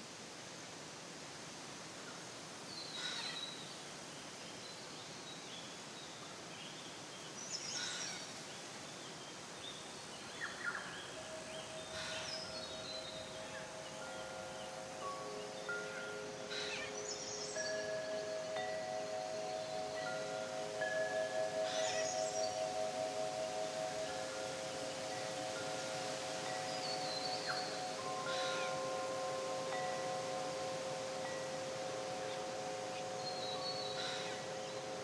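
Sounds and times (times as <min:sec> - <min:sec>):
steady forest hiss: 0:00.0 - 0:35.0
bird calls and chirps: 0:02.7 - 0:03.8, 0:04.5 - 0:35.0
wind chimes ringing: 0:10.6 - 0:35.0.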